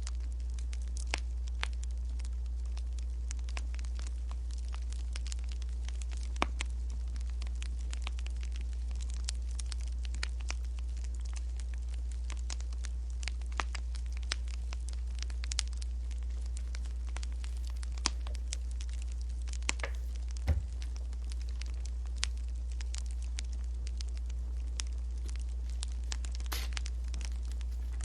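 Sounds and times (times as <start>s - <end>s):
wood fire crackling: 0.0s - 28.0s
low hum: 2.9s - 28.0s
loud knock: 19.8s - 20.8s.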